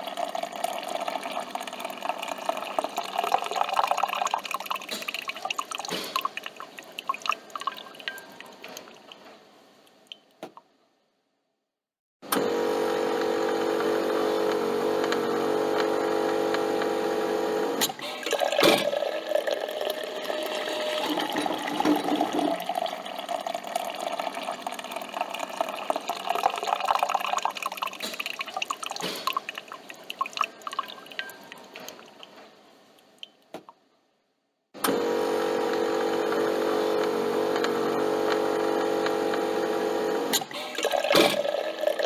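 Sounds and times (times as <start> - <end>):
coffee machine buzzing: 12.3 - 27.4, 34.8 - 42.0
liquid gurgling and hissing: 18.0 - 30.0.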